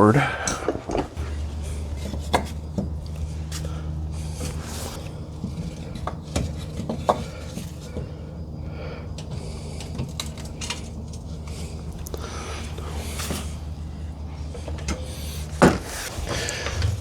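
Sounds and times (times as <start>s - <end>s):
low hum: 0.0s - 17.0s
metal tools clinking and clanking: 0.1s - 17.0s.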